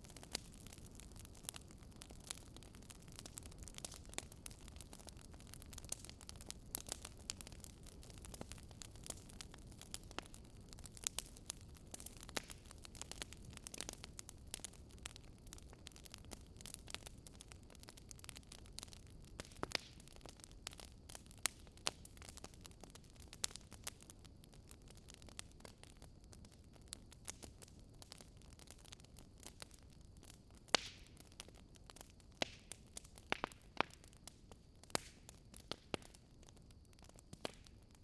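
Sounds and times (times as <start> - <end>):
campfire crackling and popping: 0.0 - 38.0
faint fire hiss: 0.0 - 38.0.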